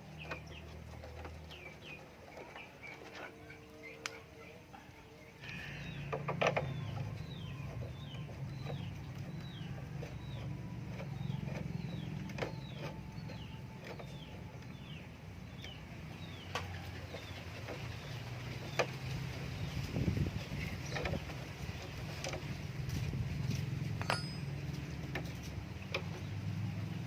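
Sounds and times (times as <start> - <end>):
low steady rumble: 0.0 - 27.0
small bird chirping: 5.4 - 27.0.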